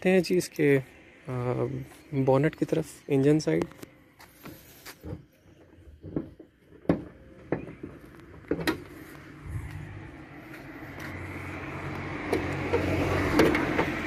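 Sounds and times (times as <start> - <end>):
car bonnet clicks and knocks: 4.4 - 9.0.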